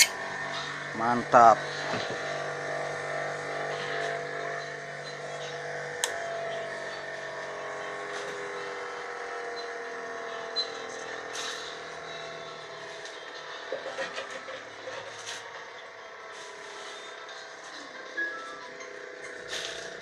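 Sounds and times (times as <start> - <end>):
bench grinder motor humming: 1.6 - 20.0.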